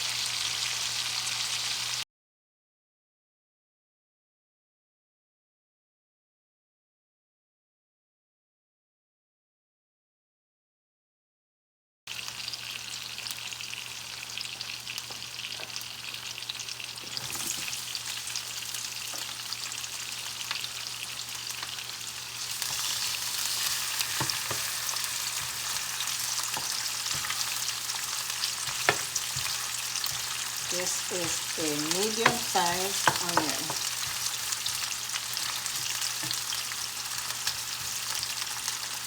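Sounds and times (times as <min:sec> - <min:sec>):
chicken sizzling in a skillet: 0:00.0 - 0:02.0, 0:12.1 - 0:39.0
utensil clicking and scraping pan: 0:22.4 - 0:38.8.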